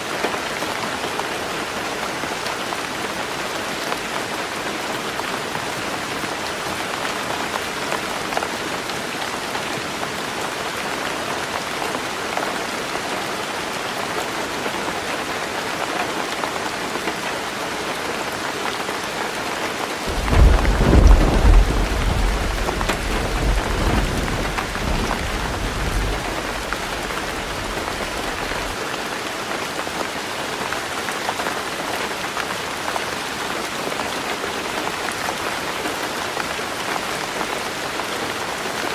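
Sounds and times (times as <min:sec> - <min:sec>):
heavy rain on a roof: 0:00.0 - 0:38.9
thunder rumbling: 0:20.1 - 0:28.8.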